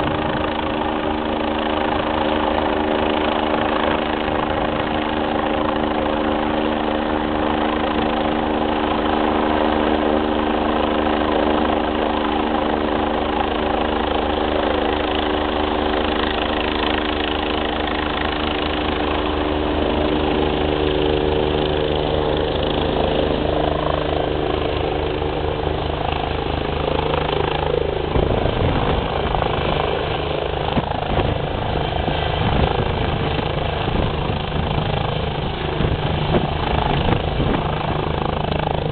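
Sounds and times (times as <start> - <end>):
wind buffeting microphone: 0.0 - 2.6, 28.0 - 38.9
helicopter turbine and rotor hum: 0.0 - 38.9
pulsing helicopter rotor beat: 0.0 - 38.9.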